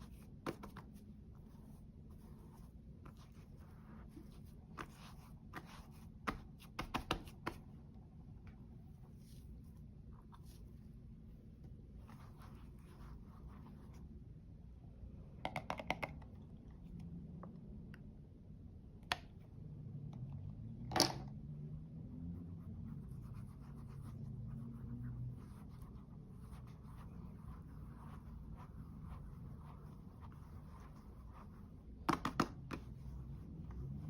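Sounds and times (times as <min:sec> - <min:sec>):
makeup scratching on surface: 0:00.0 - 0:07.7, 0:08.9 - 0:10.8, 0:12.0 - 0:14.1, 0:22.3 - 0:34.0.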